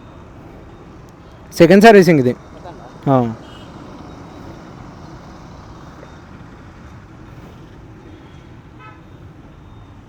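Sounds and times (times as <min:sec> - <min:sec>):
road traffic noise: 0:00.0 - 0:10.0
vehicle horn toot: 0:03.3 - 0:03.9, 0:08.2 - 0:09.2.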